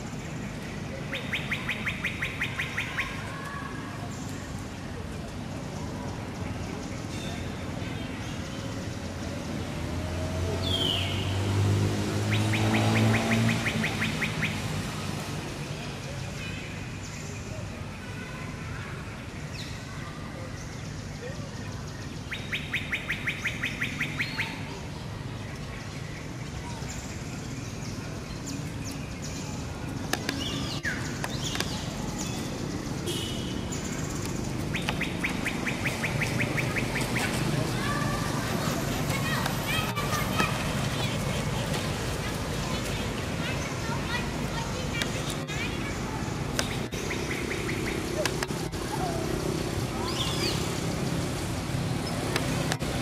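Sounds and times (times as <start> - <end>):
bird chirping: 0.0 - 4.6, 12.2 - 14.8, 20.5 - 48.5, 50.0 - 51.3
passing motor vehicle hum: 0.0 - 53.0
bird trilling rapidly: 1.0 - 3.4, 33.0 - 41.7.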